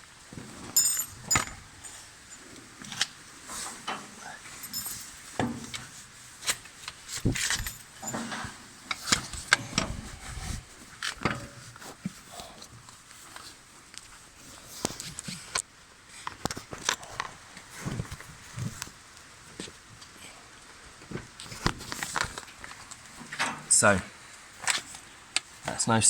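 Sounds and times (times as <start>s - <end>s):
metal clinks and knocks: 0.3s - 10.2s, 11.0s - 12.2s.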